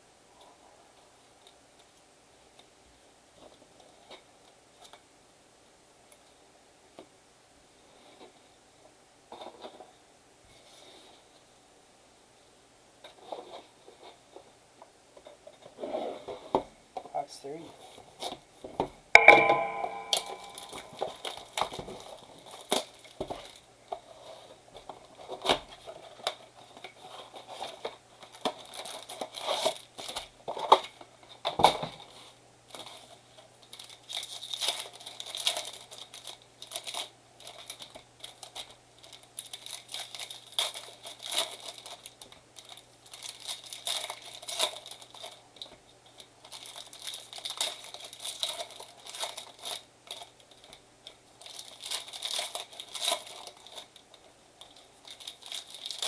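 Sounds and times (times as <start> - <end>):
foil wrappers crinkling: 24.7 - 56.0.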